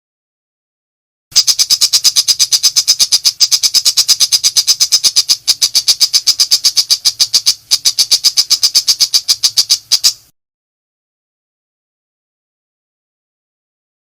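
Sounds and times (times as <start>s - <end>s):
shrike harsh chattering call: 1.4s - 10.3s.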